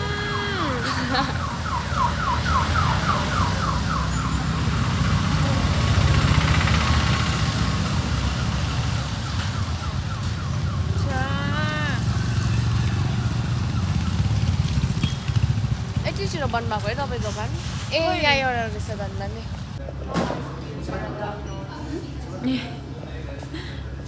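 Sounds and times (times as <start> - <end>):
electronic siren yelping: 0.0 - 6.1
street traffic rumble: 0.0 - 24.0.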